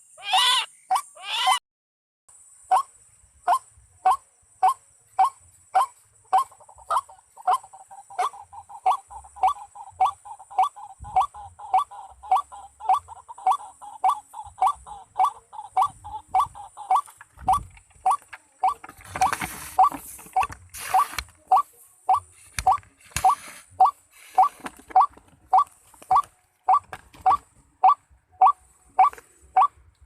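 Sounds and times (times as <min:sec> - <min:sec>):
waterhen calls: 0:03.5 - 0:29.8
steady high hiss: 0:19.2 - 0:24.8.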